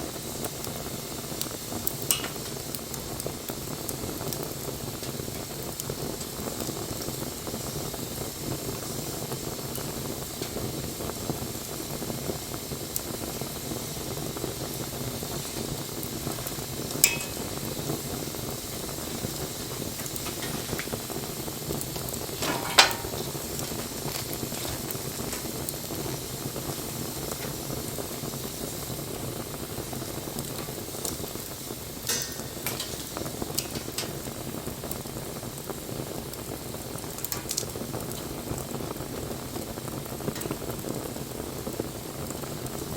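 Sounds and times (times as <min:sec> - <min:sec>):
bonfire crackling: 0:00.0 - 0:42.9
sharp fire pops: 0:00.1 - 0:42.9.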